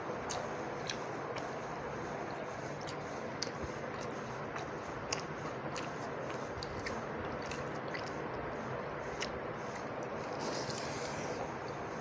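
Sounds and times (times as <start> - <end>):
wet chewing mouth clicks: 0.2 - 1.5, 2.8 - 8.4.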